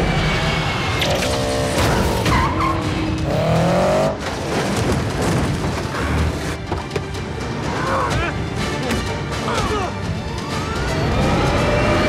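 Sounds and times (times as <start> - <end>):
car engines revving: 0.0 - 6.6.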